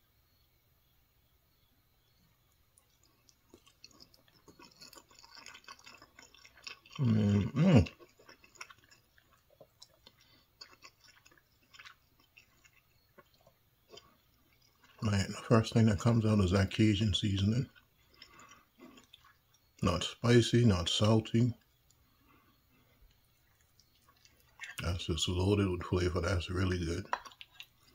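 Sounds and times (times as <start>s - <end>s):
person chewing: 2.7s - 16.8s, 17.4s - 25.1s, 26.6s - 27.9s
wet mouth clicks: 17.7s - 19.8s, 23.1s - 24.9s, 27.0s - 27.9s.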